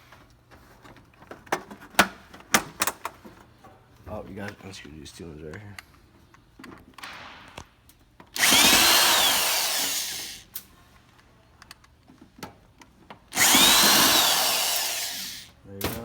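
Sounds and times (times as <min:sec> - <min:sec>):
power drill motor whine: 0:08.4 - 0:10.5, 0:13.3 - 0:15.5.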